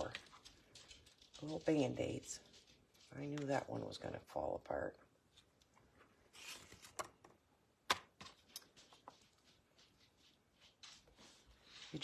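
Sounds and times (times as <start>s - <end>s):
soft rustles: 8.2s - 12.0s.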